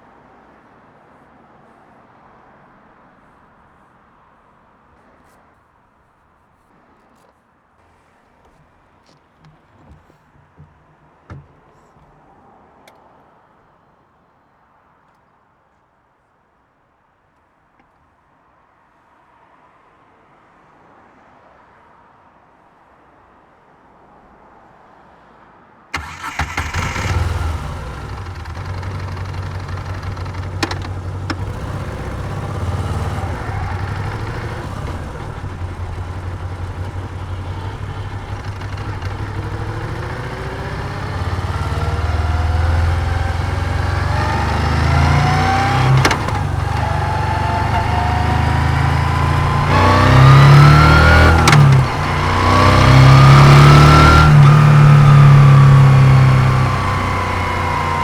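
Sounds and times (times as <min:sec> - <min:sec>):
motorcycle engine idling and revving: 0:26.0 - 0:58.0.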